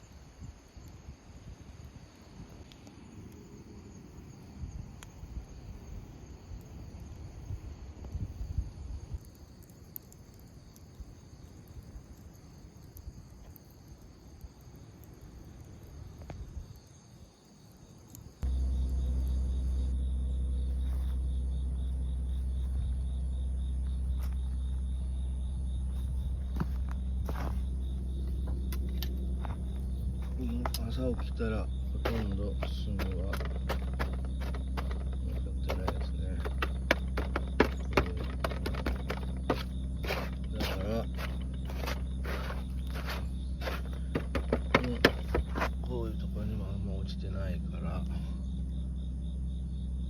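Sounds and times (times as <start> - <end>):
crickets chirring: 0.0 - 50.0
low outdoor rumble: 18.3 - 50.0
loud low hum: 18.4 - 50.0.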